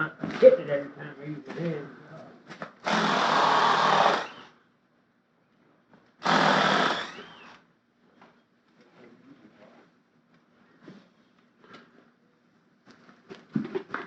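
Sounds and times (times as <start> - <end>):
small motor-driven tool running: 2.8 - 4.5, 6.2 - 7.6.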